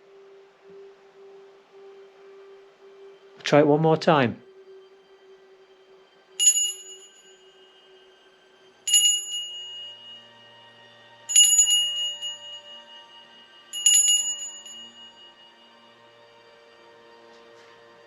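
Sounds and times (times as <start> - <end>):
small bell ringing: 6.4 - 7.7, 8.9 - 10.4, 11.3 - 15.6.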